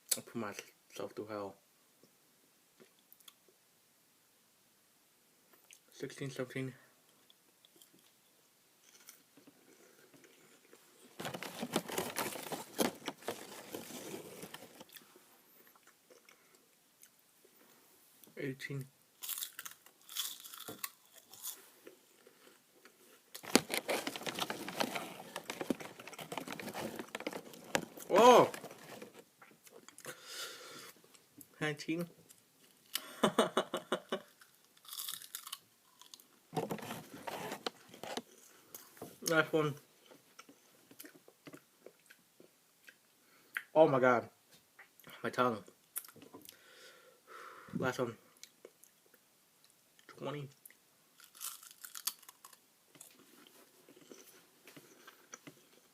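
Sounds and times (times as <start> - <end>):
crunching crispy snack: 19.2 - 21.6, 34.4 - 36.2, 51.2 - 53.2.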